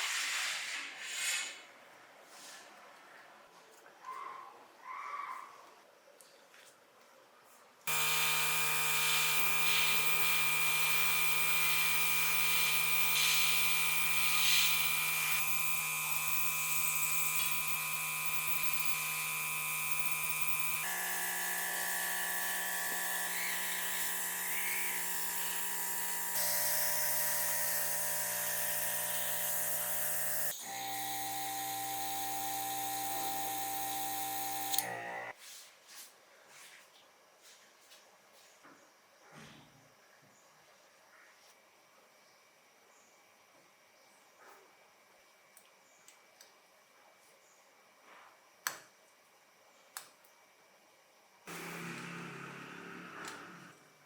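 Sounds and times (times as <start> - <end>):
electric rotary tool whining: 7.9 - 35.3, 51.5 - 53.9.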